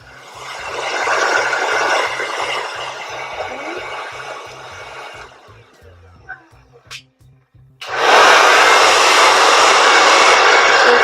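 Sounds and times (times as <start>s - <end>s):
hair dryer blowing air: 0.0s - 5.8s, 7.8s - 11.0s.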